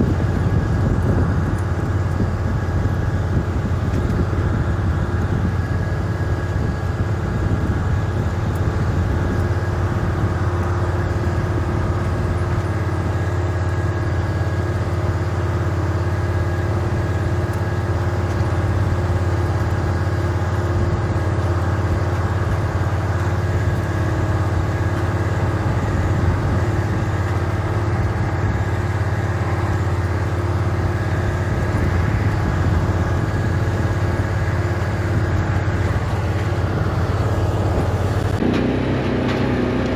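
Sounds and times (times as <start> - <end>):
vehicle engine running steadily: 0.0 - 39.9.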